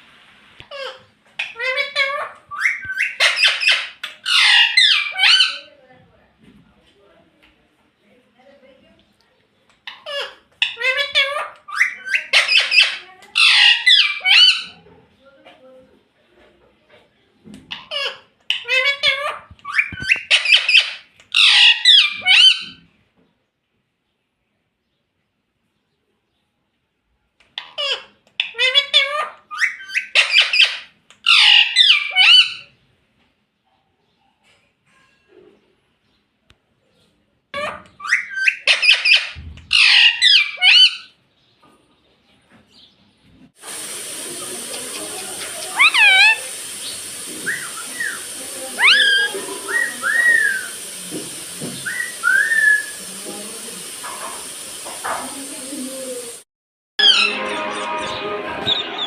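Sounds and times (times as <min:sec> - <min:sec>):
parrot squawking and chattering: 0:00.6 - 0:05.7, 0:09.8 - 0:14.9, 0:17.7 - 0:22.9, 0:27.5 - 0:32.8, 0:37.5 - 0:41.2, 0:43.7 - 0:51.1, 0:51.8 - 0:53.1, 0:57.0 - 0:59.0.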